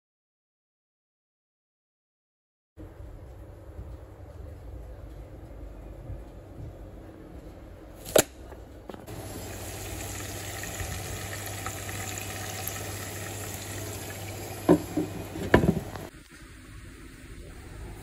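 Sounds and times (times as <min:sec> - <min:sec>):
onions sizzling in a frying pan: 0:09.1 - 0:16.1.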